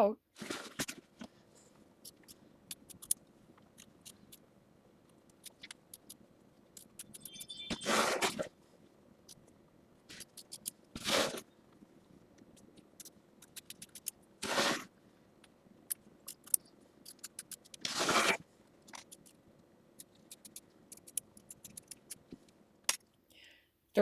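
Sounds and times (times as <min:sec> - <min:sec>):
small clicks: 0:02.0 - 0:04.4, 0:05.0 - 0:07.8, 0:09.3 - 0:10.8, 0:12.4 - 0:14.2, 0:15.4 - 0:19.4, 0:20.0 - 0:23.1
scissors cutting fabric: 0:10.1 - 0:11.5, 0:13.0 - 0:14.9, 0:16.2 - 0:19.3.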